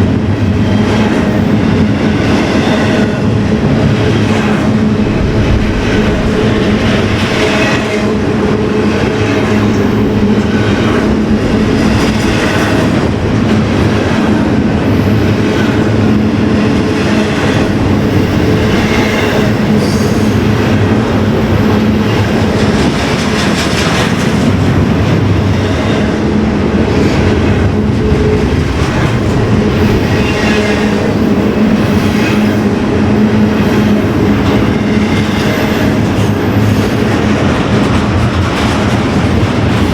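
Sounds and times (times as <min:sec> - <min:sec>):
train wheels rumbling on rail: 0:00.0 - 0:39.9
clacks over rail joints: 0:16.7 - 0:25.2, 0:34.4 - 0:39.9.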